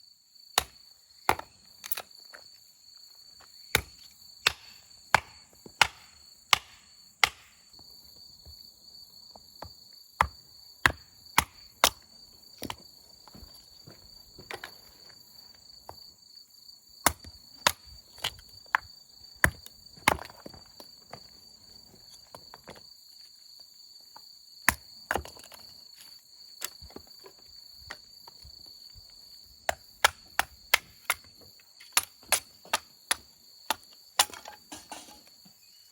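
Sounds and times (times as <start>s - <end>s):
insects trilling: 0.0s - 35.9s
axe splitting firewood: 0.6s - 2.1s, 3.7s - 7.6s, 10.2s - 14.8s, 19.4s - 20.6s, 29.7s - 35.5s.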